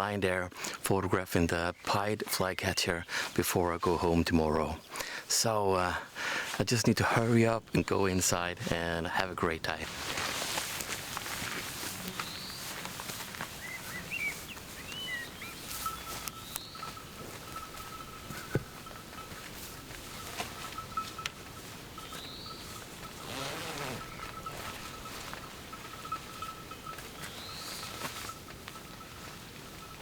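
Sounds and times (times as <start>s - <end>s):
bird chirps: 12.1s - 12.7s, 13.6s - 17.0s, 22.0s - 22.8s.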